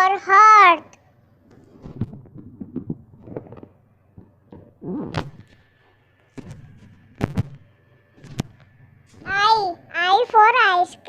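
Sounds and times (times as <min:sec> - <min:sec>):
dull thumps and knocks: 0:01.5 - 0:05.7, 0:06.3 - 0:09.3.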